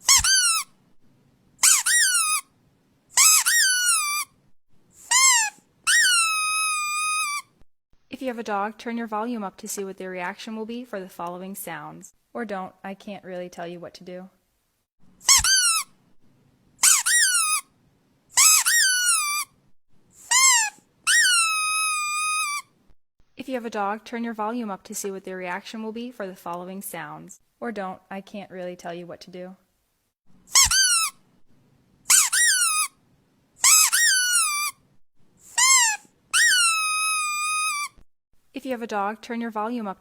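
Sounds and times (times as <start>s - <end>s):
squeaky toy squeaking: 0.0s - 0.8s, 1.6s - 2.5s, 3.2s - 4.4s, 5.0s - 7.6s, 15.2s - 16.0s, 16.8s - 17.7s, 18.4s - 19.6s, 20.2s - 22.8s, 30.5s - 31.2s, 32.1s - 33.0s, 33.6s - 34.8s, 35.4s - 38.0s.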